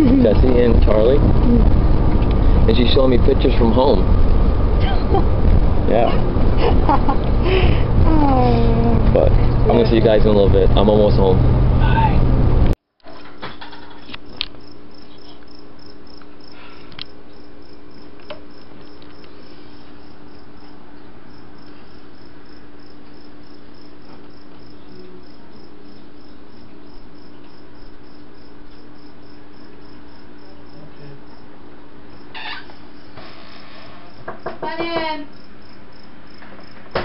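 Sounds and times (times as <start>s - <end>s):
crickets chirping: 0.0s - 12.2s, 13.7s - 37.0s
low hum: 0.0s - 12.8s.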